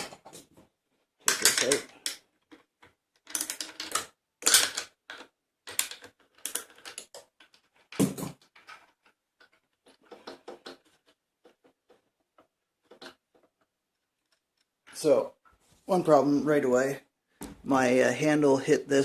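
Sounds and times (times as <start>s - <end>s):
metal parts clicking and knocking: 1.2s - 15.0s.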